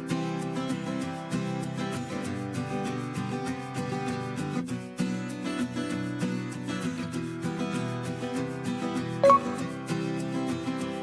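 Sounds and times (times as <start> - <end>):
background music: 9.2 - 9.8.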